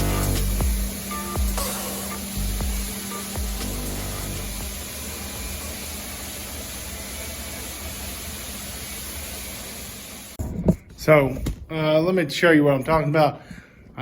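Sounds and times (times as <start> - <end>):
floor scrubber motor: 0.0 - 10.4.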